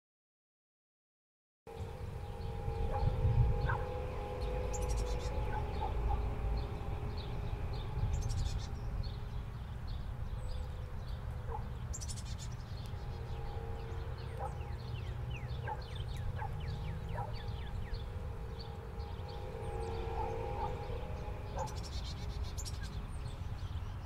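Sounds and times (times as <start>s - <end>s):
birds chirping and whistling: 1.7s - 24.0s
faint hum: 1.7s - 24.0s
low steady rumble: 1.7s - 24.0s.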